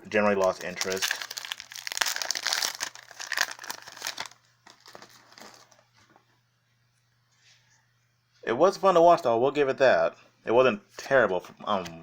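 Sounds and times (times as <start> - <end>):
foil wrapper crinkling: 0.2 - 5.9.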